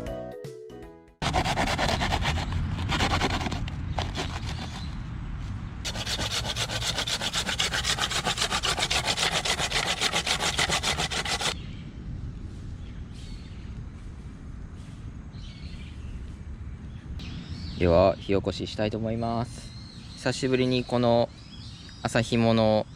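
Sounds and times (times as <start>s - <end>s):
irregular scraping and rubbing: 1.2s - 5.0s, 5.9s - 11.6s
rasping strokes on wood: 1.2s - 5.0s, 5.9s - 11.6s.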